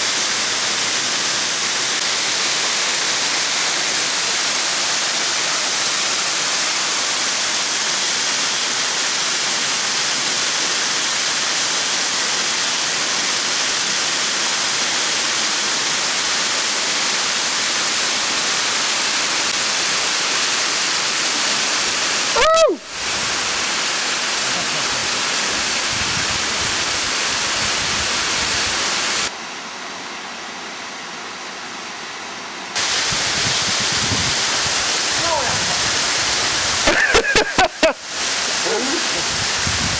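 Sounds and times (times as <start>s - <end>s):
waterfall rushing: 0.0s - 29.3s, 32.8s - 39.9s
high cry bending in pitch: 22.4s - 22.9s.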